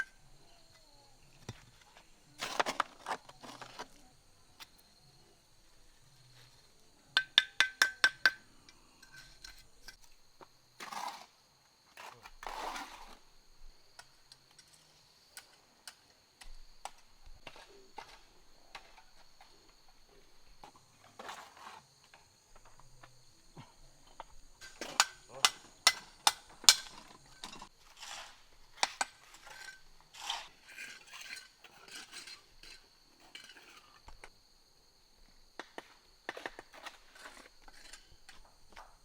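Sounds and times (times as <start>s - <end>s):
sharp ringing knocks: 7.2s - 8.4s.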